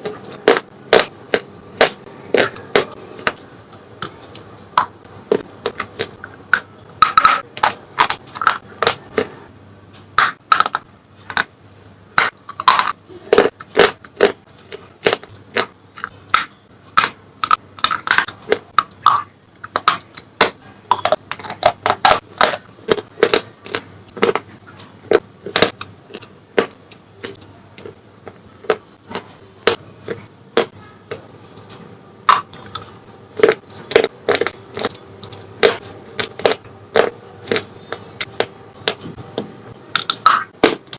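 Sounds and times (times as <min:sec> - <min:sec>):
crunchy chewing: 0:12.2 - 0:20.2, 0:20.9 - 0:39.2.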